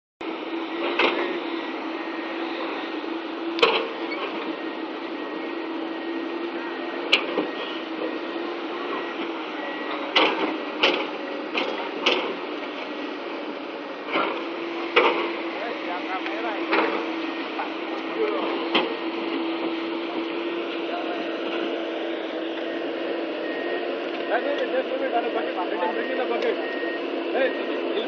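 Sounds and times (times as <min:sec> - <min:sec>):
excavator engine running: 0:00.2 - 0:28.0.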